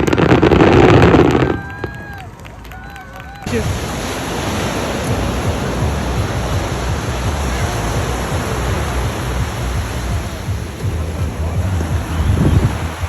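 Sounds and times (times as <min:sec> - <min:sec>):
wind buffeting microphone: 0:03.4 - 0:13.0.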